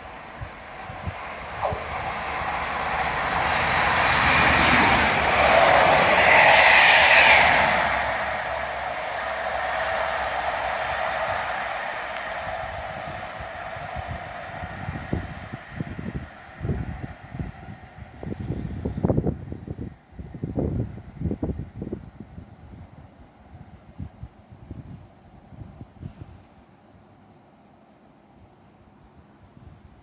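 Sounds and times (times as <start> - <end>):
train wheels on rails: 0.0 - 19.5
diesel train passing: 0.0 - 22.0.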